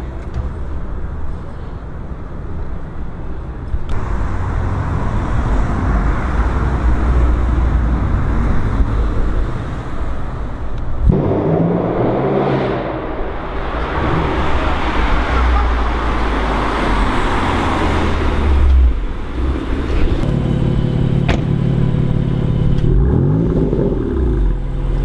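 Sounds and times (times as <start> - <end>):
engine and exhaust rumble: 0.0 - 25.0
pitched engine note: 11.0 - 16.2.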